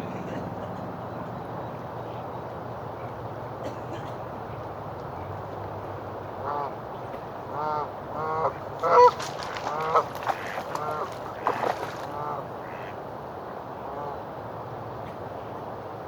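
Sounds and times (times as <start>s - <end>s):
geese honking: 7.5s - 13.0s.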